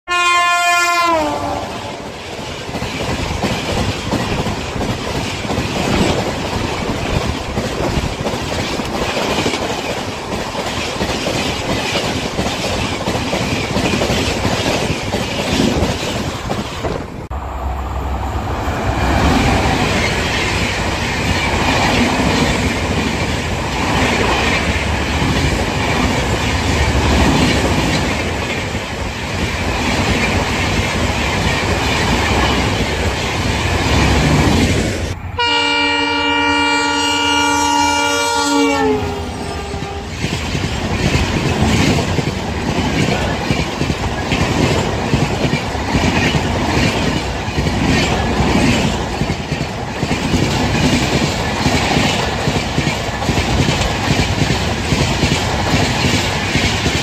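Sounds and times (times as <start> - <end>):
train horn: 0.1 - 2.0, 35.3 - 40.2
low train rumble: 0.1 - 57.0
train wheels clattering on rails: 1.8 - 17.3, 18.9 - 35.2, 39.6 - 57.0.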